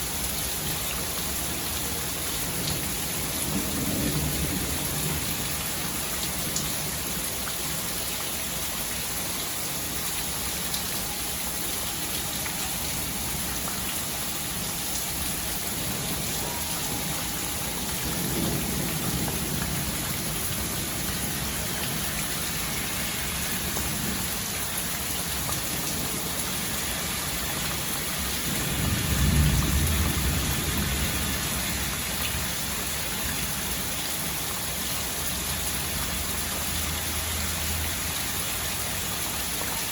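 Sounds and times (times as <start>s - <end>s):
steady rain falling: 0.0s - 39.9s
distant thunder rumbles: 15.7s - 22.7s, 28.2s - 32.5s.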